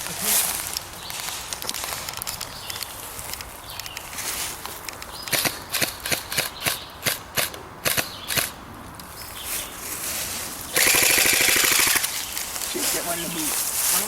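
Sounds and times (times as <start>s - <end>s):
airsoft gun full-auto burst: 10.7s - 12.3s
airsoft gun single shots: 10.8s - 12.2s.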